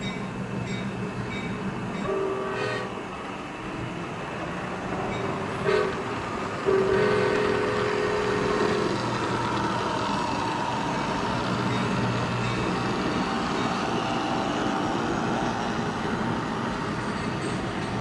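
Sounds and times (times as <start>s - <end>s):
diesel train rumbling past: 0.0s - 18.0s
train horn blast: 2.0s - 3.1s, 5.5s - 9.1s.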